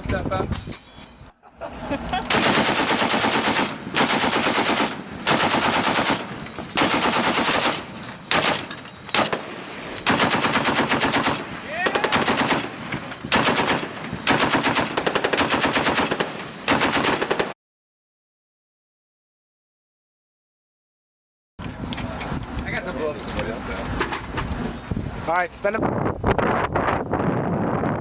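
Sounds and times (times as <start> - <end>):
machine-gun bursts: 2.3 - 17.5.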